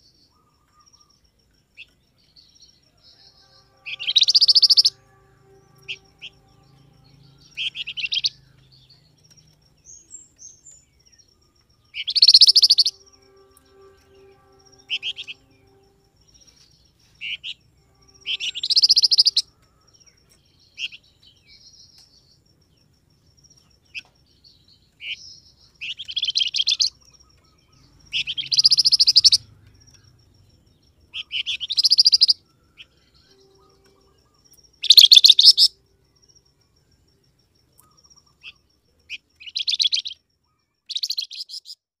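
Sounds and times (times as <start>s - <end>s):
bird rapid chirping song: 0.0s - 19.5s, 23.1s - 36.8s, 37.8s - 41.8s
single bird chirps: 3.0s - 11.3s, 11.9s - 17.6s, 18.2s - 19.4s, 23.9s - 30.1s, 31.2s - 35.7s, 37.8s - 41.8s.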